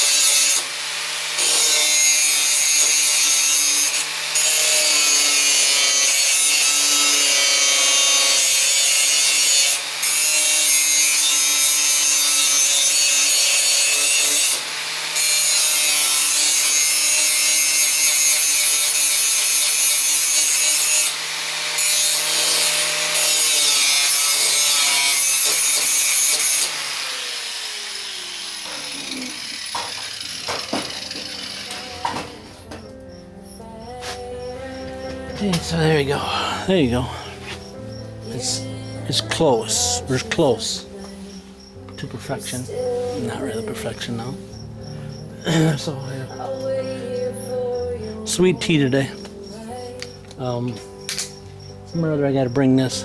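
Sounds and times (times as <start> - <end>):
angle grinder grinding metal: 0.0 - 53.0
grinder disc winding down: 25.9 - 32.9.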